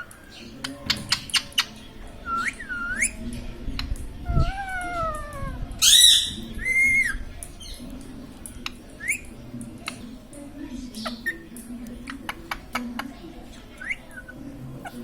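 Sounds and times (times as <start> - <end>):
parrot calling and squawking: 4.2 - 7.2.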